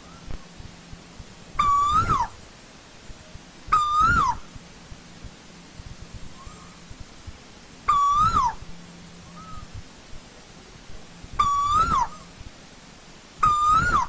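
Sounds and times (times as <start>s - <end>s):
bird whistled calls: 1.6s - 2.4s, 3.7s - 4.5s, 6.3s - 6.8s, 7.9s - 8.6s, 9.3s - 9.7s, 11.4s - 12.3s, 13.4s - 14.0s.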